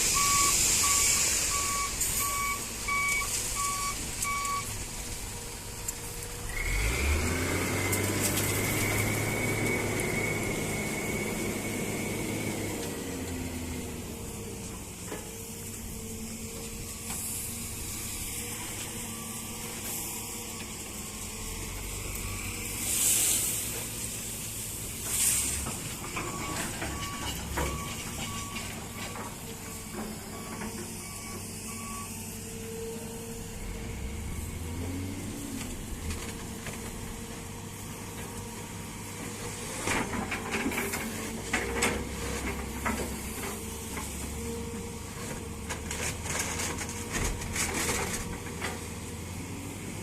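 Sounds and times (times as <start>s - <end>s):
diesel engine running: 0.0s - 50.0s
warning beeps: 0.2s - 4.7s.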